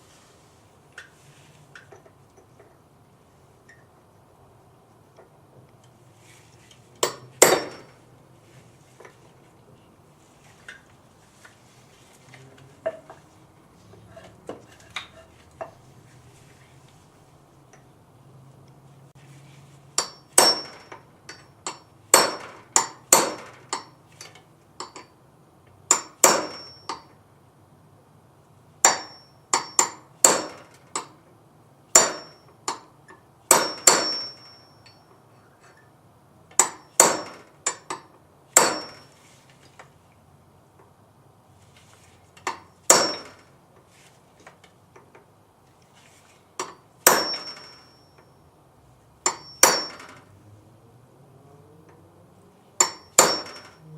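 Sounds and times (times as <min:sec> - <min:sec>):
hammer striking steel: 0:07.0 - 0:08.0, 0:20.0 - 0:24.0, 0:25.9 - 0:27.1, 0:28.8 - 0:31.2, 0:31.9 - 0:32.9, 0:33.5 - 0:35.1, 0:36.6 - 0:39.2, 0:42.5 - 0:43.5, 0:46.6 - 0:48.3, 0:49.2 - 0:50.3, 0:52.8 - 0:53.9.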